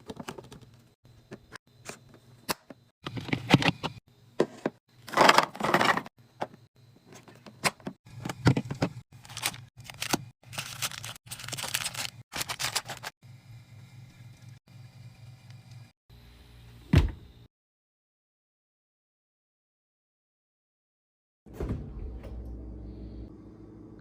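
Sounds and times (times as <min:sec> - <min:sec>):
plastic packaging rustling: 0:08.5 - 0:13.1
low hum: 0:21.5 - 0:24.0.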